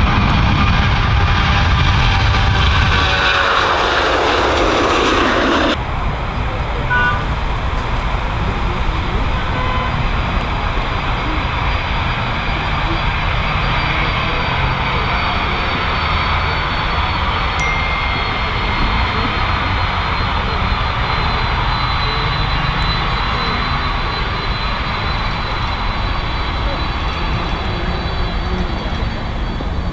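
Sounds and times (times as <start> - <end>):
jet engines roaring: 0.0 - 29.9
faint high whine: 1.2 - 29.6.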